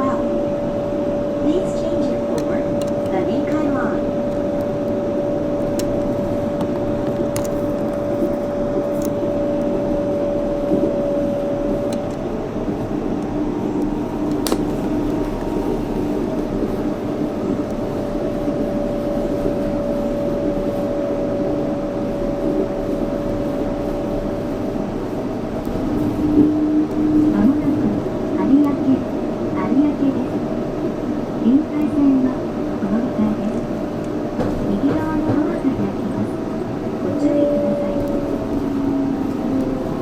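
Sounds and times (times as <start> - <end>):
train drive whine: 0.0 - 40.0
train rolling noise: 0.0 - 40.0.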